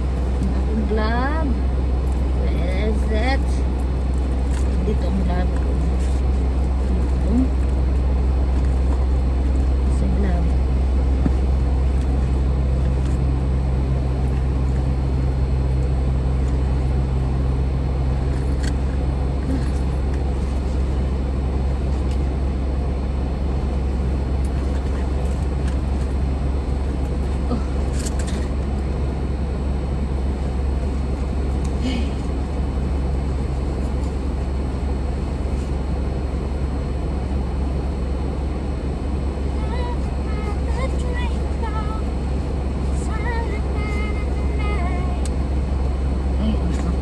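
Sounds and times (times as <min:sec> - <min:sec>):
car engine drone inside cabin: 0:00.0 - 0:47.0.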